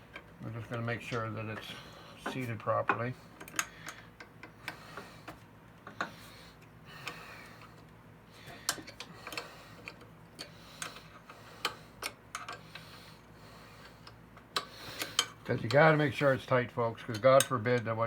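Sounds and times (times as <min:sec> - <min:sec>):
hand tools clicking on metal: 0:08.6 - 0:13.0, 0:17.0 - 0:18.0.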